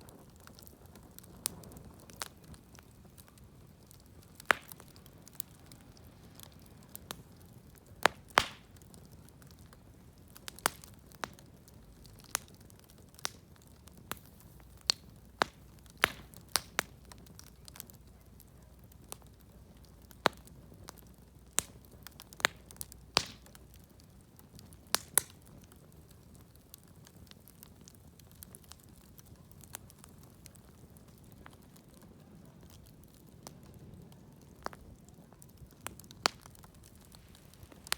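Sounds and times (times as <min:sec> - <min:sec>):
wood fire crackling and popping: 0:00.0 - 0:37.9.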